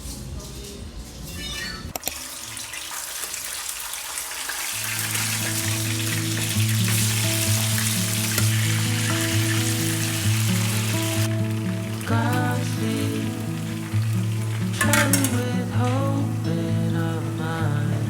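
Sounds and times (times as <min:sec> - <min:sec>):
food sizzling in a pan: 0:02.2 - 0:18.0
instrumental music with bass: 0:05.0 - 0:18.0.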